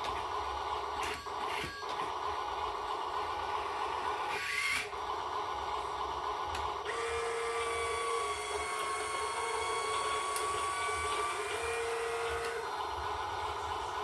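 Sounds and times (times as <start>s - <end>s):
small motor whining: 1.0s - 2.3s, 3.4s - 5.0s, 6.8s - 14.0s.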